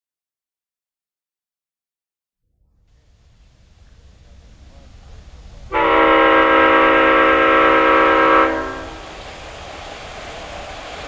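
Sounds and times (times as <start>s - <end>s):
train running rumble: 2.9s - 11.0s
locomotive horn blast: 5.7s - 9.1s.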